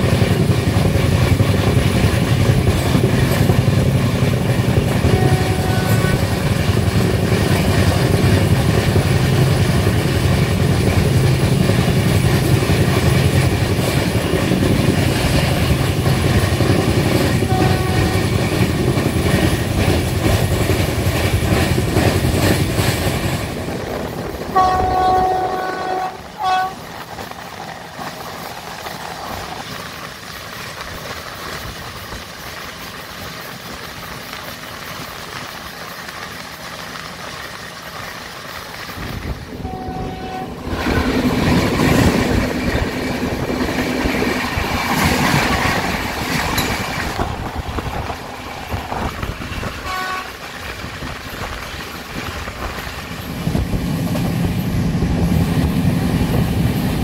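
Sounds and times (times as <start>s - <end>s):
train running rumble: 0.0s - 57.0s
wheels clattering on rails: 0.0s - 57.0s
train horn blasts: 5.0s - 6.4s, 17.4s - 18.5s, 24.5s - 26.9s, 39.6s - 40.7s, 49.6s - 50.5s.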